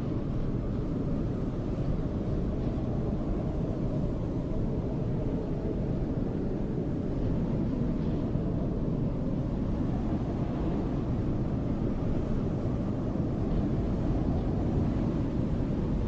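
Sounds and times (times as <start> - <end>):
snowstorm wind rumbling: 0.0 - 16.0.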